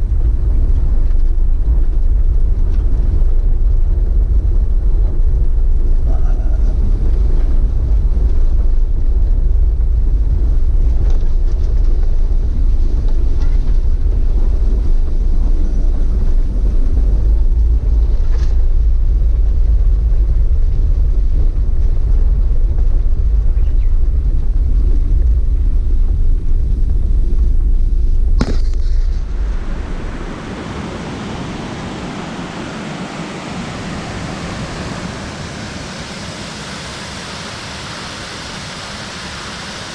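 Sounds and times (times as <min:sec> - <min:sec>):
waterfall rumbling: 0:28.3 - 0:39.9.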